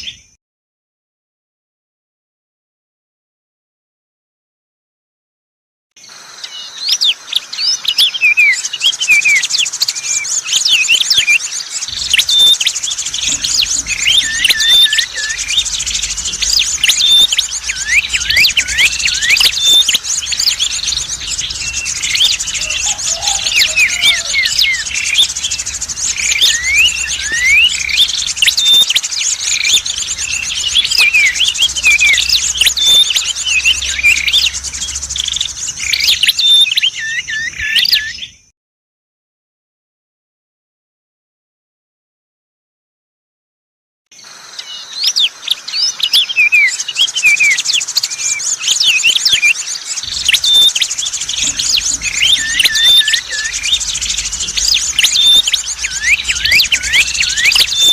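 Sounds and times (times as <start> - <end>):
songbirds chirping and twittering: 0.0 - 0.4, 6.0 - 38.5, 44.2 - 57.9
rapid high trill: 11.9 - 37.2, 50.0 - 57.9
low hum: 11.9 - 37.6, 50.0 - 57.9.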